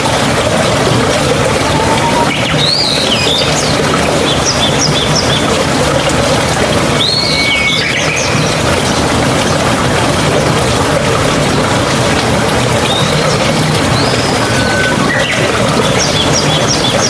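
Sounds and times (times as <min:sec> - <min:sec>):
babbling mountain stream: 0:00.0 - 0:17.0
birds calling: 0:12.8 - 0:17.0.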